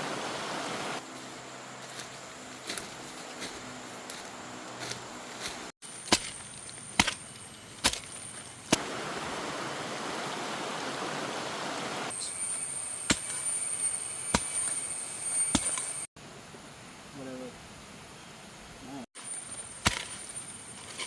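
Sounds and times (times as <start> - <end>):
digging tool striking soil: 5.8 - 8.8, 13.0 - 13.5, 14.3 - 14.8, 15.4 - 16.0, 19.3 - 21.0
steady rushing noise: 8.8 - 12.1.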